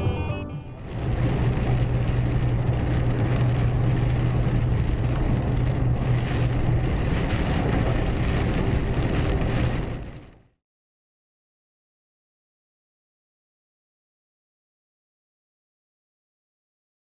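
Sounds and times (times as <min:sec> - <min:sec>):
music: 0:00.0 - 0:00.9
low engine hum: 0:00.0 - 0:10.4
road and wind noise: 0:00.6 - 0:10.5.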